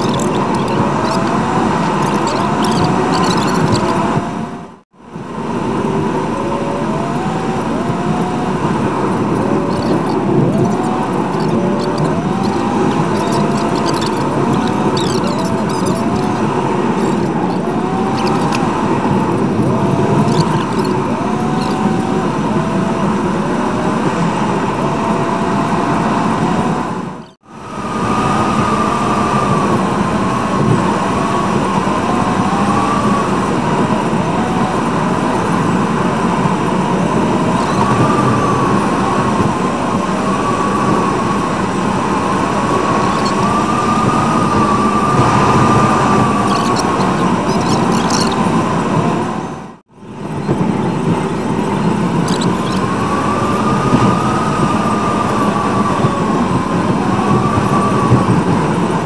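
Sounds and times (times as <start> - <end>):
car engine: 0.0 - 27.3
road noise: 0.0 - 59.0.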